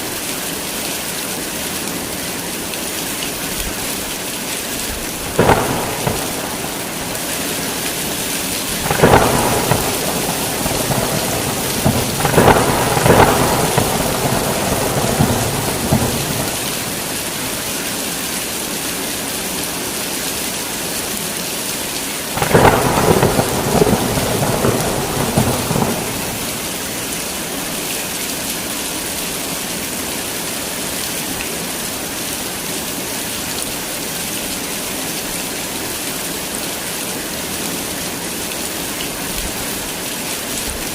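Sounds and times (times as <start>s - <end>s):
heavy rain pouring: 0.0s - 40.9s
thunder rolling and crackling: 4.8s - 17.9s, 22.4s - 27.4s.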